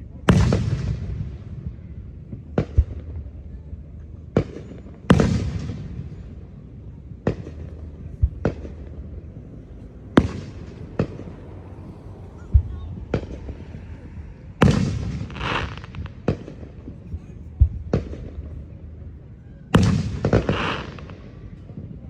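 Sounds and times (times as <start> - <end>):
fireworks exploding: 0.0 - 22.0
rumbling echo: 0.0 - 22.0.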